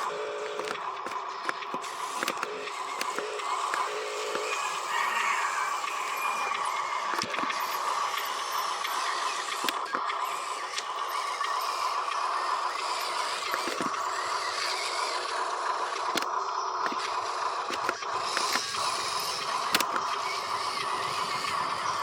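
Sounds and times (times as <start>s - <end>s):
toy electric motors whining: 0.0s - 22.0s
sharp clicks: 0.4s - 4.7s, 5.8s - 22.0s.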